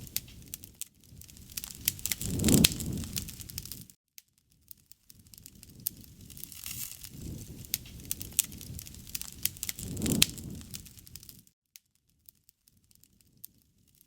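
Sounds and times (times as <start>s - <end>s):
low rush of flames: 0.0s - 4.0s, 5.1s - 11.5s
wood fire crackling and popping: 0.0s - 14.0s.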